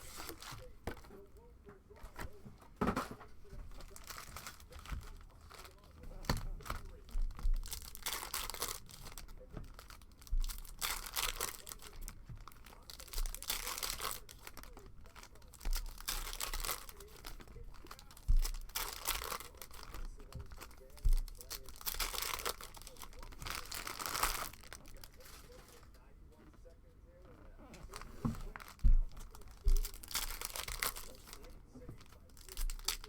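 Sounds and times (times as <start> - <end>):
foil wrappers tearing and crinkling: 0.0 - 1.2, 2.1 - 26.0, 27.8 - 33.0
thumps: 27.3 - 33.0.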